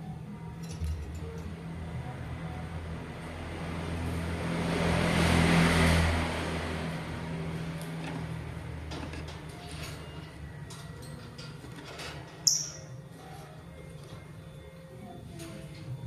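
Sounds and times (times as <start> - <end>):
motor vehicle passing by: 1.5 - 10.6.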